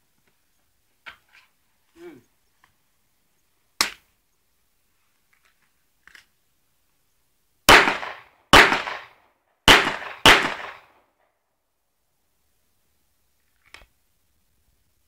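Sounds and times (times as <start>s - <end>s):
pistol shots with echo: 7.7s - 11.0s.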